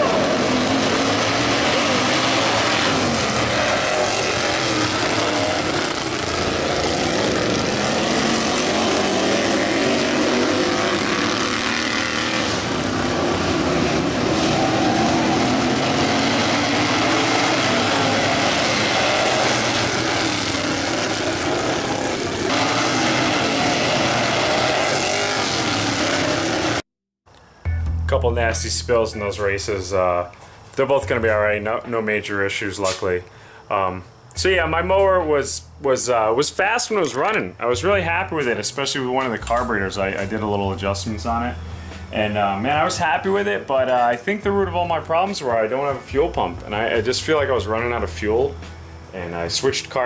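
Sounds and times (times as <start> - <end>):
lawn mower engines revving: 0.0 - 26.8, 28.3 - 50.0.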